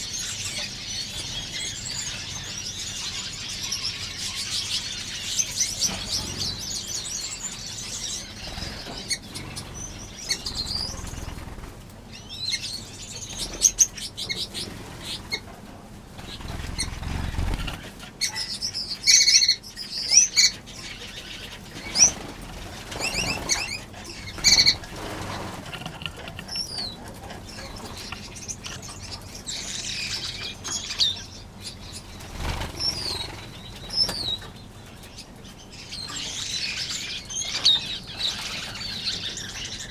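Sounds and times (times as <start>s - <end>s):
finches chirping: 0.0s - 15.5s, 16.2s - 39.9s
wings fluttering: 5.4s - 12.0s, 13.2s - 18.3s, 21.1s - 29.3s, 31.7s - 35.2s.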